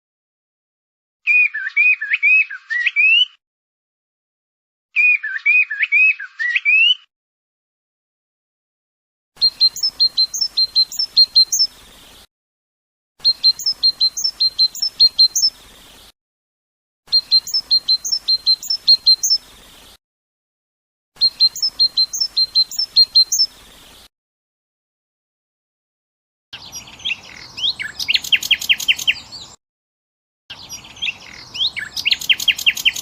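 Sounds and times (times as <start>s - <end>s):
goldfinch song: 1.2s - 3.4s, 5.0s - 7.1s, 9.4s - 12.3s, 13.2s - 16.1s, 17.1s - 20.0s, 21.2s - 24.1s, 26.6s - 29.6s, 30.5s - 33.0s.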